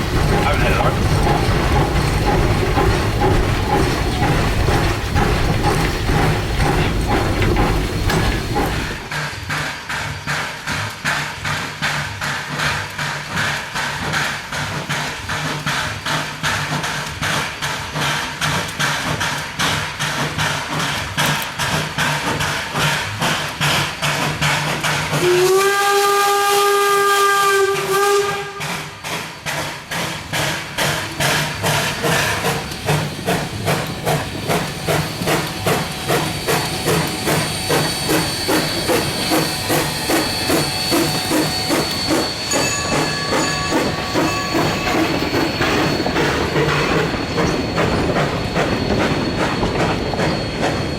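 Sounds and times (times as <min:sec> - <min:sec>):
steam locomotive chuffing: 0:00.0 - 0:50.9
steam whistle blast: 0:25.2 - 0:29.0.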